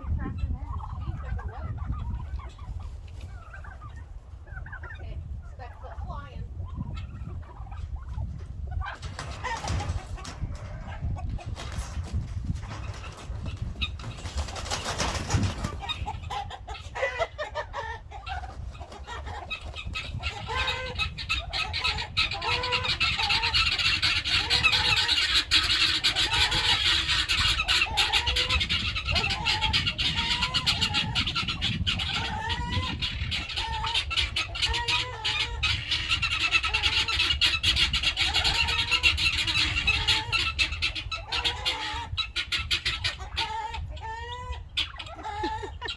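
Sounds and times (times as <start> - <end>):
turkeys calling: 0.2 - 12.0, 12.6 - 45.9.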